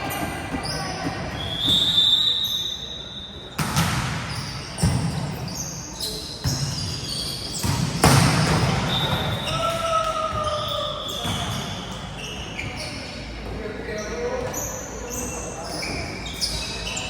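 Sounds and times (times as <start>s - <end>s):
volleyball hits echoing: 3.6s - 5.5s, 7.6s - 11.8s.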